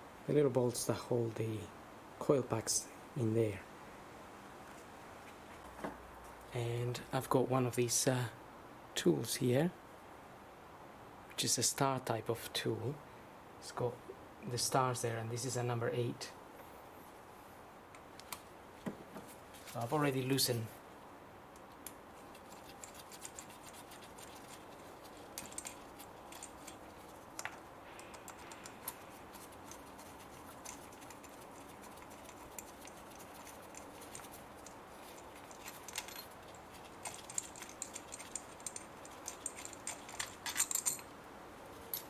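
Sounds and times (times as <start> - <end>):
loose bolts clinking: 24.2 - 41.2.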